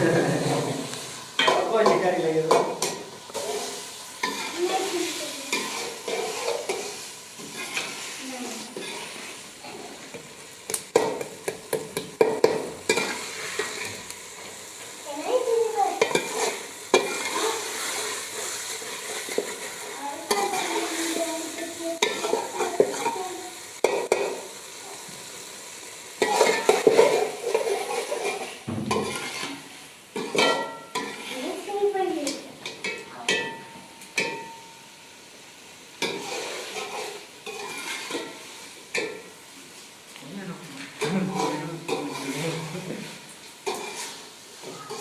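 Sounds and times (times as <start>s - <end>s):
metal spoon scraping a pan: 0.0s - 10.3s, 10.9s - 14.6s, 16.0s - 24.5s, 26.2s - 31.7s, 36.0s - 39.4s, 41.0s - 45.0s
food sizzling in a pan: 0.0s - 45.0s.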